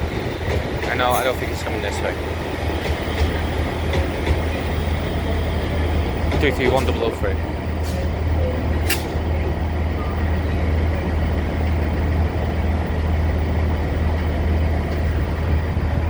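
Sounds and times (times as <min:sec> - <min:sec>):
train idling hum: 0:00.0 - 0:16.0
short sharp click: 0:08.8 - 0:09.2.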